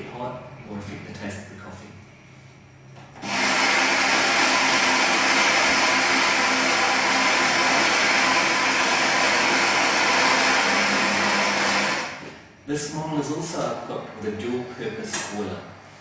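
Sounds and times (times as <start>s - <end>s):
coffee grinder motor whirring: 3.2s - 12.2s.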